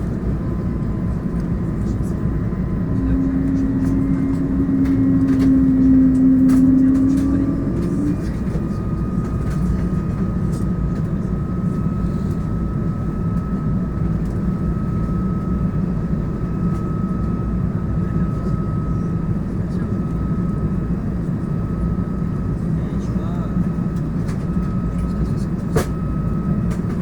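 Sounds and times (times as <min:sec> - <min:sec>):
high whine: 0:00.0 - 0:17.2
low steady hum: 0:00.0 - 0:19.0
airliner cabin engine rush: 0:00.0 - 0:27.0.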